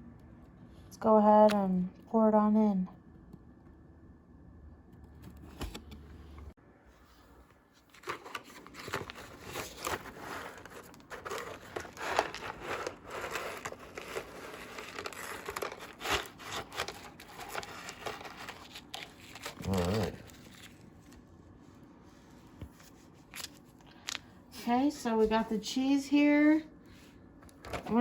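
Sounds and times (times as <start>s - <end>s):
cardboard box crinkling and rustling: 7.8s - 21.2s.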